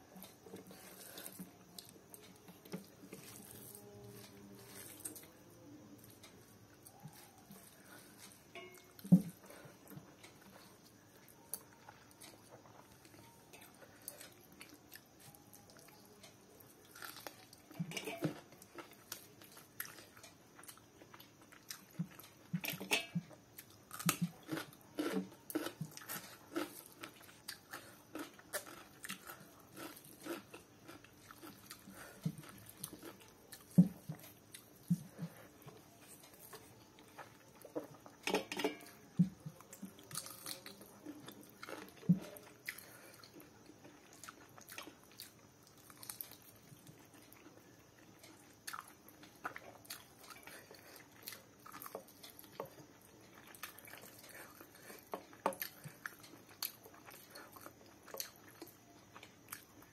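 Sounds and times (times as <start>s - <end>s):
wet chewing and mouth clicks: 16.8s - 59.9s.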